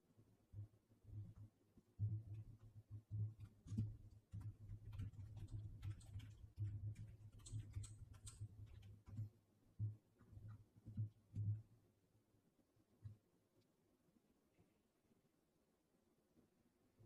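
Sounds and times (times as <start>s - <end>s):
computer keyboard and mouse clicking: 2.2s - 9.3s.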